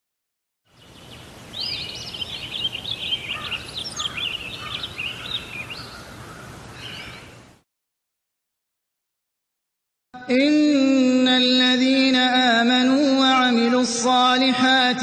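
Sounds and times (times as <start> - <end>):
songbird singing: 0.7 - 7.6.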